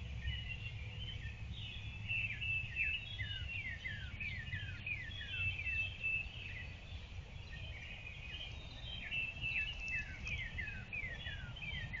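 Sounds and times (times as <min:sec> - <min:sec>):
birds singing and calling: 0:00.0 - 0:12.0.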